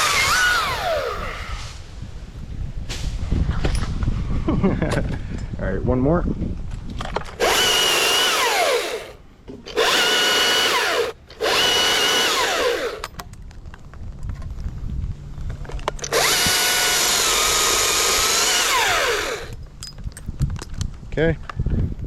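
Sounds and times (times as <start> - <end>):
battery chainsaw whining: 0.0 - 1.6, 7.4 - 13.1, 16.0 - 19.6.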